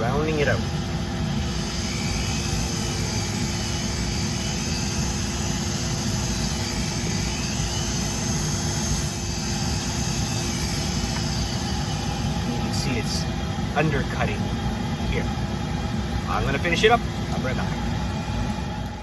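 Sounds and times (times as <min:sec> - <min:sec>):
rotary tool grinding wood: 0:01.4 - 0:12.8.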